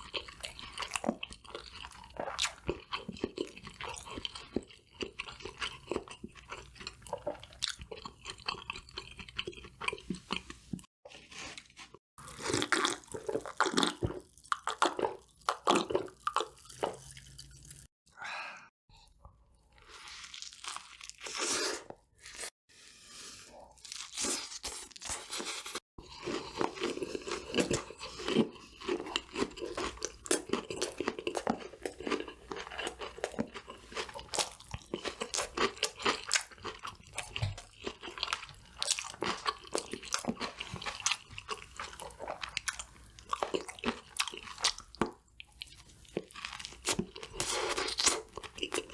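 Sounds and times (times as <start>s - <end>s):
crunching crispy fried food: 19.9s - 21.6s, 23.8s - 48.9s.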